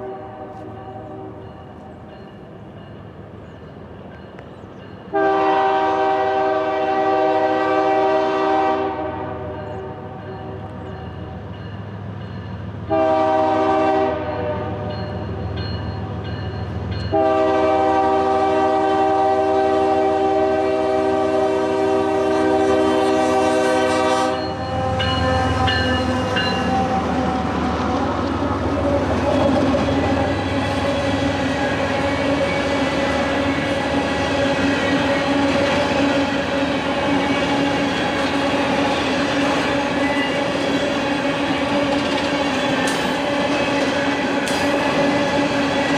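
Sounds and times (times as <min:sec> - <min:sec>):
locomotive horn: 0:00.0 - 0:01.6, 0:05.1 - 0:11.4, 0:12.8 - 0:15.6, 0:17.1 - 0:45.9
train wheels on rails: 0:00.0 - 0:45.9.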